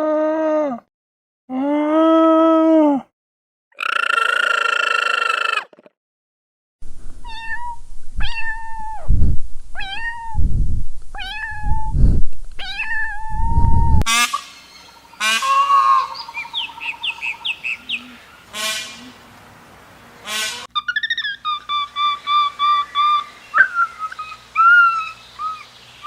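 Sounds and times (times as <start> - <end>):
low rumbling noise: 6.8 - 14.1
cat meowing: 7.2 - 9.0, 9.8 - 10.4, 11.2 - 11.9, 12.6 - 13.7.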